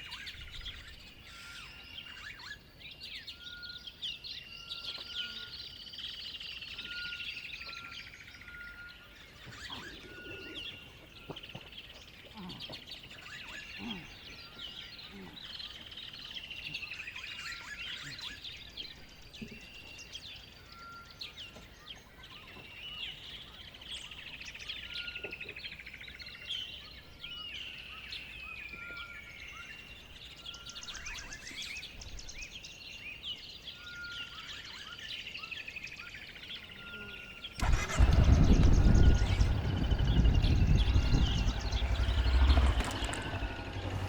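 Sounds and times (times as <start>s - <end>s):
birds chirping and trilling: 0.0s - 44.0s
loud low rumble: 37.6s - 44.0s.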